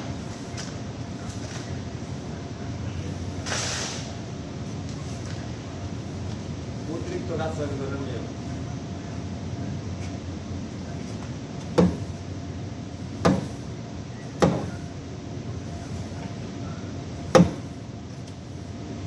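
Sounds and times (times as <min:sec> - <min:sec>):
steady low hum: 0:00.0 - 0:19.0
sharp knocks: 0:11.8 - 0:12.2, 0:13.2 - 0:13.6, 0:14.4 - 0:14.8, 0:17.3 - 0:17.7.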